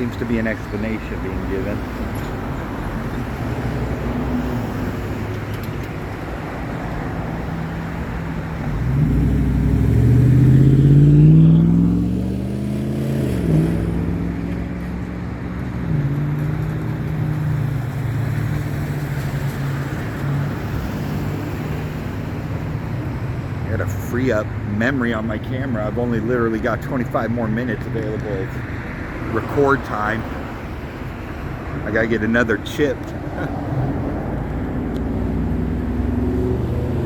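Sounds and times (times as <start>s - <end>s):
road traffic noise: 0.0s - 37.0s
vehicle accelerating past: 8.7s - 22.3s, 33.3s - 37.0s.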